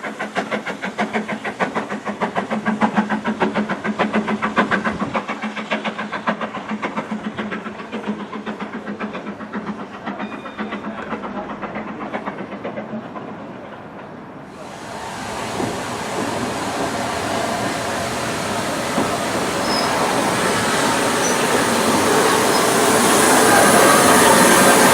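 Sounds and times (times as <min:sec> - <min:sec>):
steam locomotive exhaust beats: 0:00.0 - 0:13.9, 0:14.5 - 0:24.9
steady rushing noise: 0:14.6 - 0:24.9.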